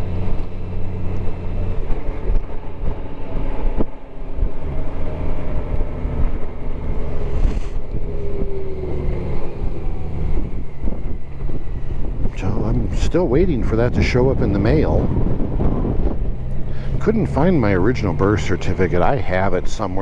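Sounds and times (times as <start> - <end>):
wind noise on microphone: 0.0 - 20.0.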